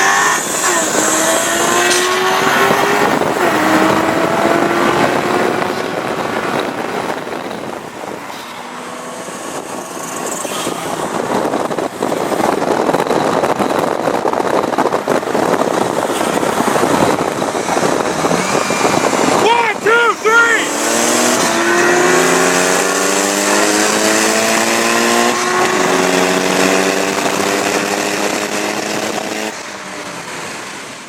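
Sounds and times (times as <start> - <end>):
car engines accelerating hard: 0.0 - 31.0
loud rushing noise: 14.4 - 29.6.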